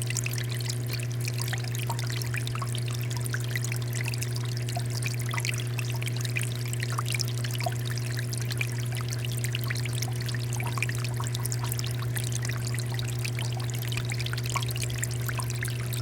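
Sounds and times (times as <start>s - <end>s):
water fountain splashing: 9.2s - 16.0s.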